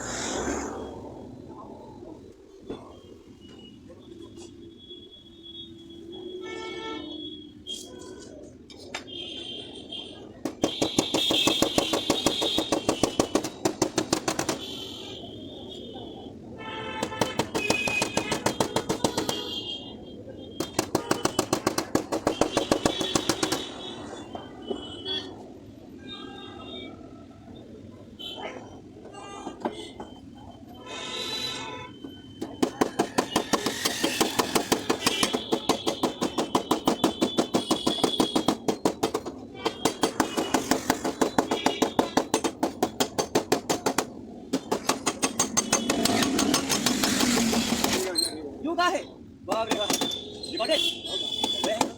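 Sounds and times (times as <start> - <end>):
steady rushing noise: 0.0 - 2.4
rapid tapping on sheet metal: 10.4 - 14.9, 17.0 - 19.6, 20.6 - 23.7, 32.4 - 48.1, 49.5 - 50.2, 51.4 - 51.9.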